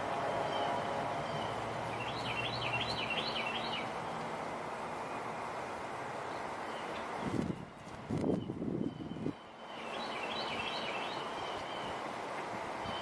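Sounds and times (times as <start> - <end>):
bird singing: 0.2 - 4.0, 8.3 - 12.0
wind noise: 7.2 - 9.4.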